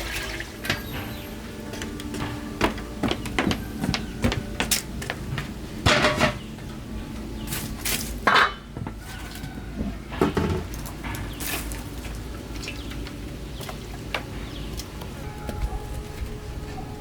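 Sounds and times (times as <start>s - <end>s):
dishes and utensils clinking: 0.0s - 6.5s, 8.0s - 11.8s.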